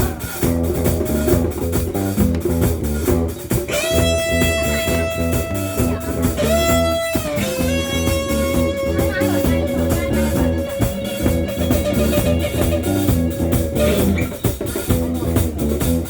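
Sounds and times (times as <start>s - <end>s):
steady bass: 0.0s - 16.0s
electric guitar sustained notes: 3.7s - 14.4s.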